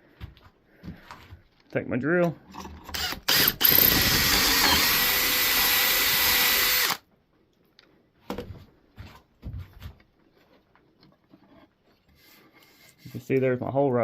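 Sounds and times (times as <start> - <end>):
power drill boring into wood: 2.9 - 7.0.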